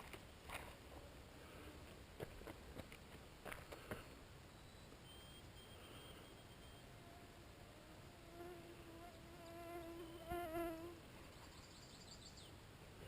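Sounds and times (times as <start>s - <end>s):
flying insect buzzing: 7.0s - 11.0s.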